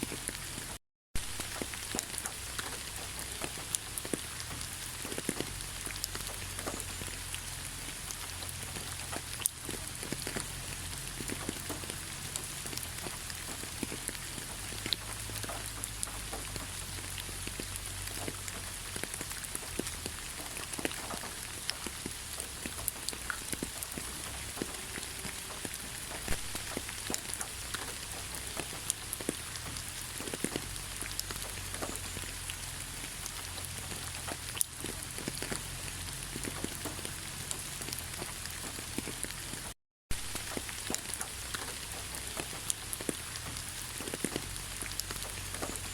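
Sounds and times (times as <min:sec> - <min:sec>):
rain drips tapping: 0:00.0 - 0:45.9
steady rain hiss: 0:00.0 - 0:45.9.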